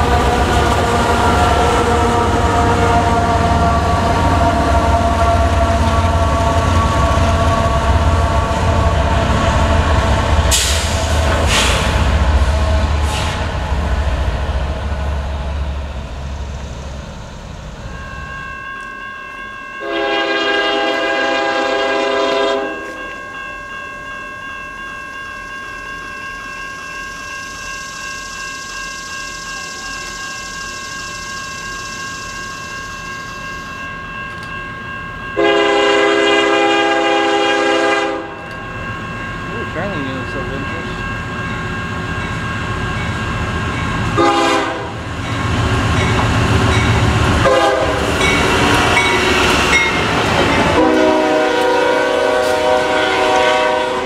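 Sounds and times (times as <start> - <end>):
distant locomotive air horn: 0.0 - 9.1, 19.8 - 22.8, 35.4 - 38.4, 44.2 - 45.1, 47.4 - 49.3, 50.7 - 54.0
freight train rumbling past: 0.0 - 54.0.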